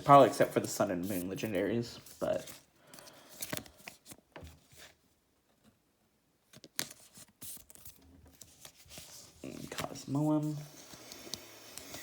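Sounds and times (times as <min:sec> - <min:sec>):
trading cards rustling and clicking: 0:00.1 - 0:04.9.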